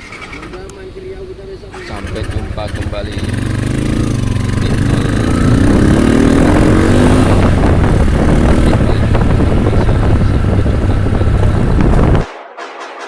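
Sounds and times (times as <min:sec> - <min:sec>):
motorcycle engine revving: 0:01.7 - 0:12.2
wind rush on microphone: 0:03.5 - 0:12.3.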